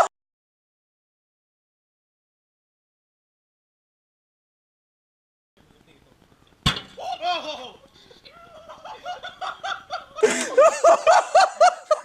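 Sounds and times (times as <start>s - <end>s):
egg bursting with sharp bang: 6.6s - 7.0s
people laughing: 7.0s - 12.0s.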